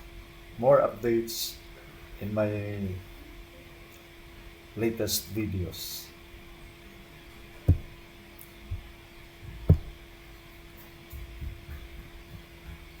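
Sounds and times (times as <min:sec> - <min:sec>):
steady low hum: 0:00.0 - 0:13.0
soft knocks: 0:07.6 - 0:08.0, 0:09.5 - 0:10.0
sharp low thumps: 0:07.7 - 0:08.0, 0:09.5 - 0:10.0.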